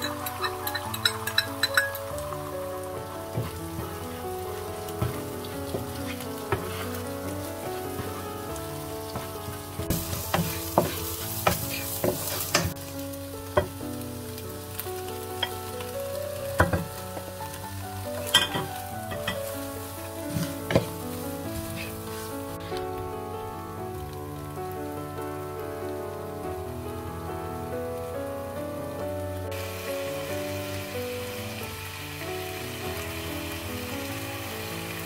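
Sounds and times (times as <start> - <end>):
oil sizzling in a wok: 0.0 - 35.0
wooden spatula scraping and tapping pan: 3.4 - 4.0, 4.9 - 7.0, 9.1 - 12.8, 20.3 - 21.0, 21.6 - 22.8.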